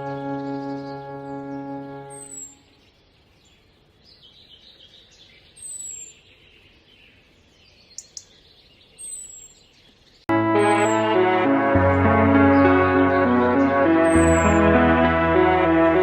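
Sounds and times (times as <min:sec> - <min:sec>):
birds twittering: 0:00.0 - 0:10.2.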